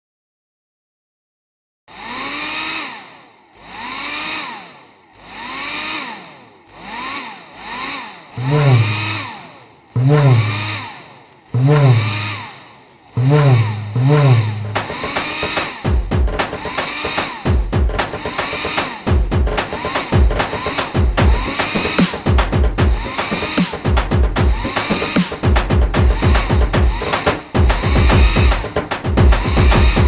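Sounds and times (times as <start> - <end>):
hair dryer whine: 1.9 - 30.0
deep bass thump: 8.4 - 9.2, 10.0 - 10.9, 11.6 - 12.4, 13.2 - 15.0
sharp drum hits: 10.0 - 10.9, 11.6 - 12.5, 13.2 - 30.0.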